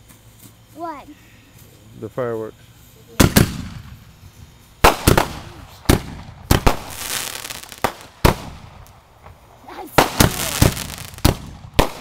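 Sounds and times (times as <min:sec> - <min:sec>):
fireworks crackling hiss: 0:00.0 - 0:12.0
fireworks bangs: 0:03.2 - 0:12.0.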